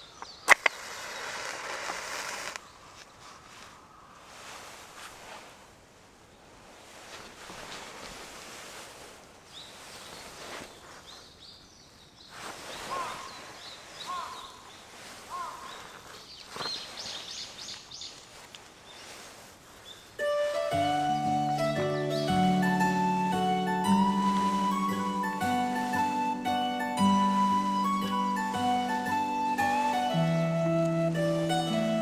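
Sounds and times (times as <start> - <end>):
wind rustling leaves: 0.0 - 32.0
birds calling: 12.8 - 18.2, 19.8 - 32.0
high bird chirps: 20.2 - 32.0.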